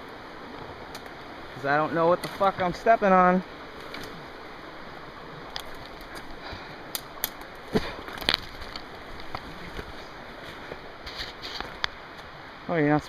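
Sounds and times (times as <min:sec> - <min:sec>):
steady rushing hiss: 0:00.0 - 0:13.0
twigs snapping underfoot: 0:05.5 - 0:09.9.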